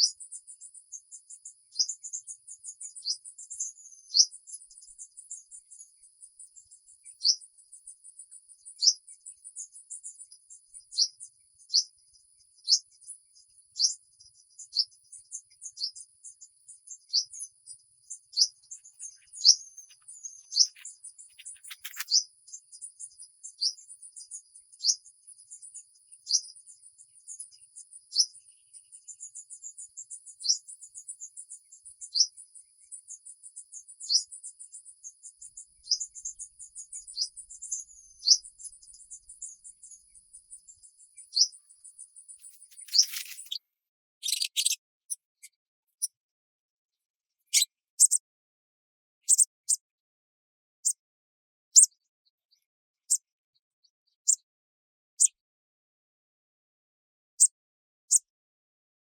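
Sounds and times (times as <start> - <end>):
insect chirps: 18.3 - 26.5, 33.8 - 43.6
rustle: 21.4 - 22.2, 42.5 - 43.5.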